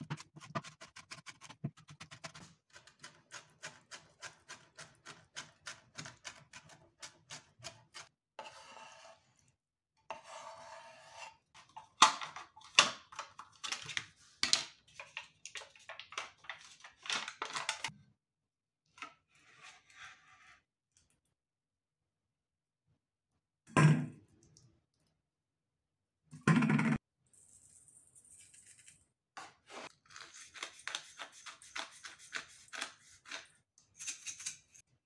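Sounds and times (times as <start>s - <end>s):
spoon scraping a plastic tub: 0.0s - 12.0s.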